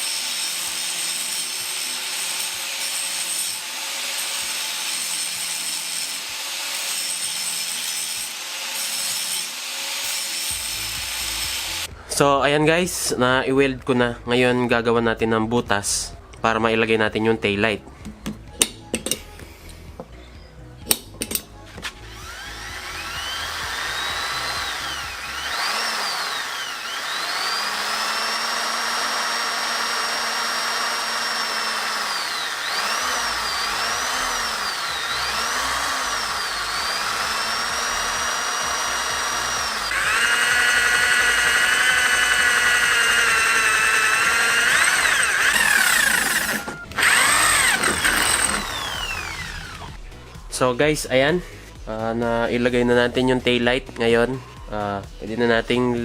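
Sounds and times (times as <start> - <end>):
electric drill boring metal: 0.0 - 11.9, 22.0 - 50.0
drill clicks: 21.2 - 50.0.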